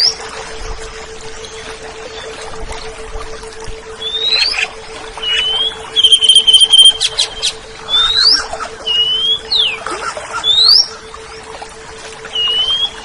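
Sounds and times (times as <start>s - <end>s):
steady low hum: 0.0s - 13.0s
bird singing whistled notes: 4.0s - 9.8s, 10.4s - 11.0s, 12.3s - 13.0s.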